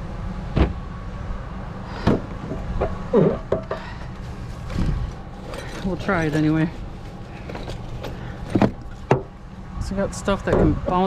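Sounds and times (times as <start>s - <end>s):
objects knocking and clunking: 2.0s - 9.4s.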